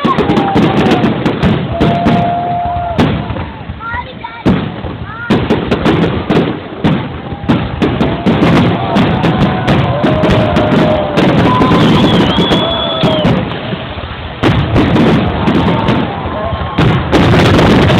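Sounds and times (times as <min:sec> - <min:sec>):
fireworks bangs and crackles: 0:00.0 - 0:17.9.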